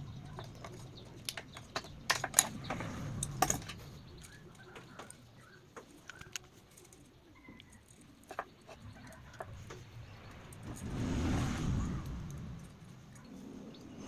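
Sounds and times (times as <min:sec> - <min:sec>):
small hard parts clicking: 0:00.0 - 0:10.8.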